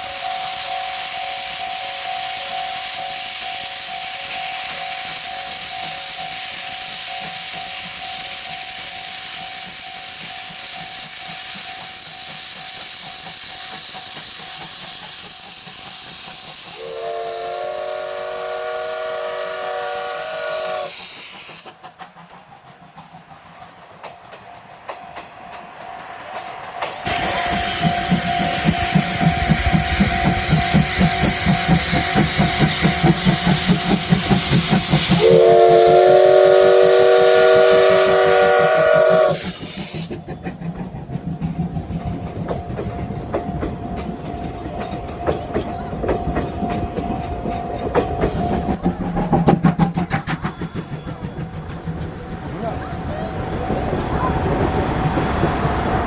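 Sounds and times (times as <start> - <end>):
rhythmic locomotive chuffing: 0.0 - 56.0
steam locomotive hissing: 0.0 - 56.0
steam whistle blast: 16.5 - 21.6, 35.0 - 40.1.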